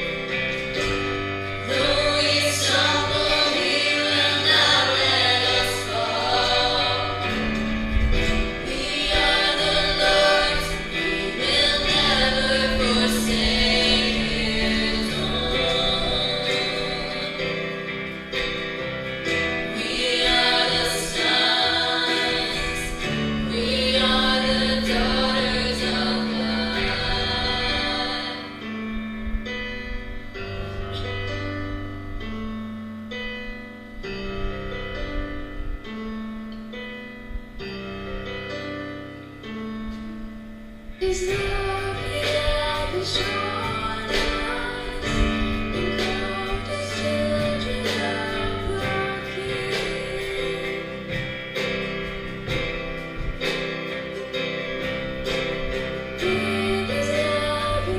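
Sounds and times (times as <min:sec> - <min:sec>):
choir singing worship song: 0:00.0 - 0:29.4, 0:40.8 - 0:57.9
instrumental backing with bass: 0:00.0 - 0:57.9.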